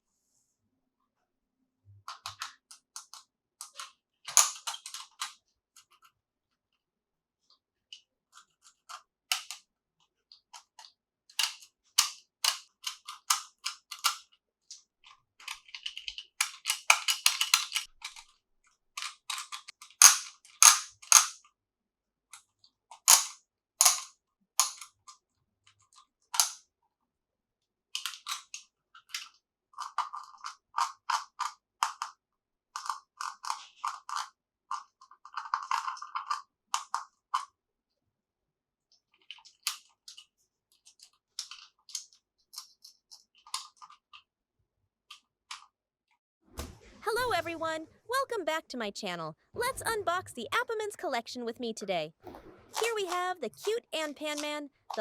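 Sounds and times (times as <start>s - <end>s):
plastic toy pieces clicking: 2.1s - 6.0s, 8.4s - 9.6s, 10.3s - 18.3s, 19.0s - 21.4s, 23.0s - 25.2s, 25.9s - 26.6s, 28.0s - 32.2s, 32.8s - 37.5s.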